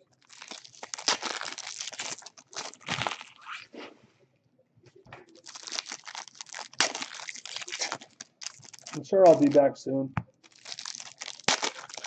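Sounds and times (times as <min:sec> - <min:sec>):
plastic wrappers crinkling and tearing: 0:00.0 - 0:03.7, 0:05.2 - 0:09.6, 0:10.4 - 0:12.0.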